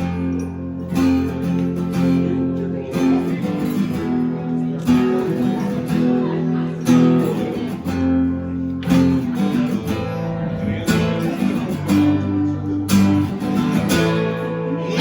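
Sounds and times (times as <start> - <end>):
strummed acoustic guitar: 0.0 - 15.0
person singing: 14.7 - 15.0.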